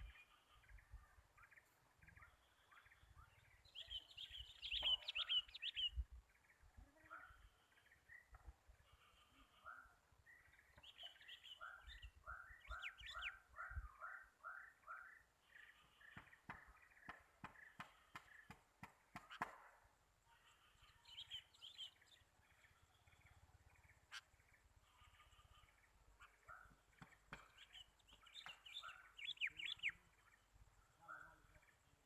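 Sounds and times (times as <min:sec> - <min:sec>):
high bird chirps: 0:02.2 - 0:06.0, 0:26.2 - 0:30.1.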